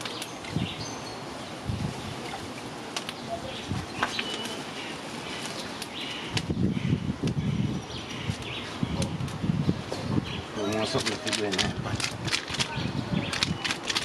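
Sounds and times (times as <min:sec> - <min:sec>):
birds chirping: 0:00.0 - 0:14.0
outdoor background noise: 0:00.0 - 0:14.0
sharp clicks: 0:10.7 - 0:14.0.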